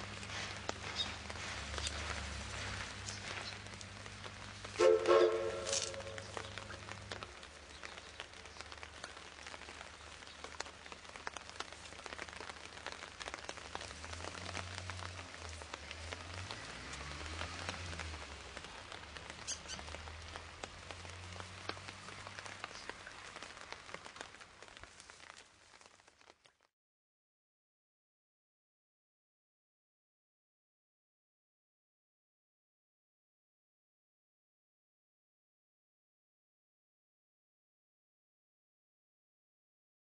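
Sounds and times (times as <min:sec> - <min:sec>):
raindrops ticking: 0:00.0 - 0:26.7.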